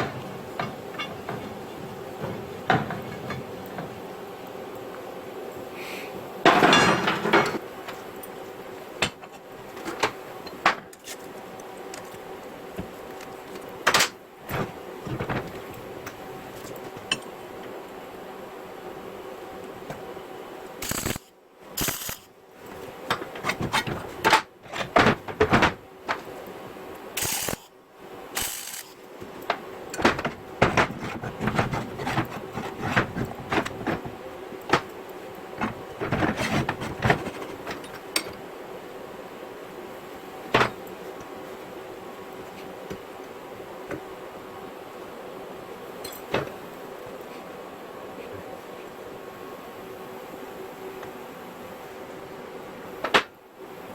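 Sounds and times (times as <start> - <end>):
steady background hum: 0.0 - 53.9
metal tool clanks and knocks: 6.5 - 7.6.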